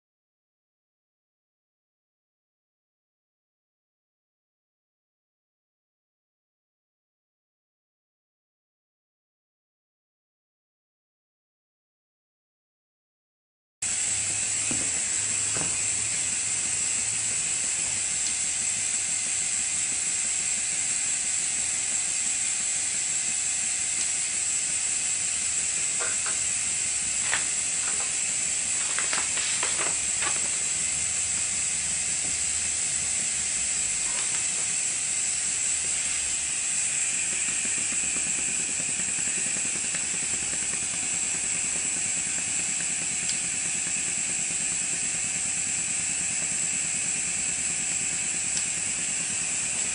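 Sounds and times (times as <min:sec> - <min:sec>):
air hissing: 0:13.9 - 0:49.9
small engine mechanical clatter: 0:36.8 - 0:49.9.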